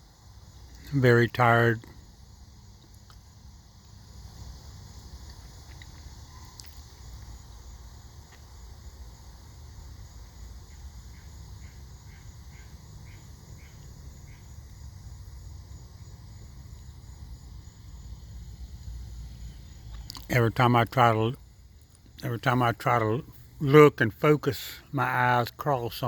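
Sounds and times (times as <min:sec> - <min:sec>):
insects buzzing drone: 0:00.0 - 0:26.0
faint chirps: 0:05.2 - 0:07.7.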